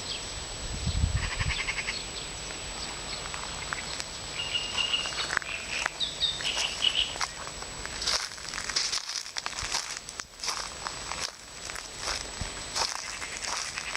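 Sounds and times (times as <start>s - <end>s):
nightingale singing: 1.2s - 7.4s.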